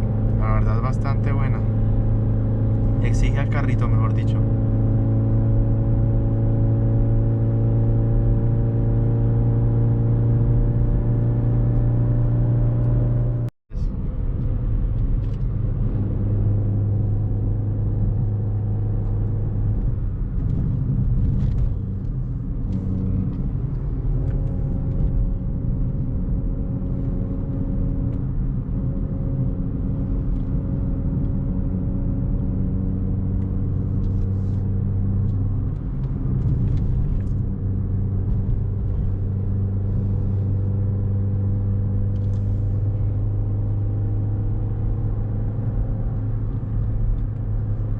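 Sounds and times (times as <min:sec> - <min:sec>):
car engine running under load: 0:13.7 - 0:47.9.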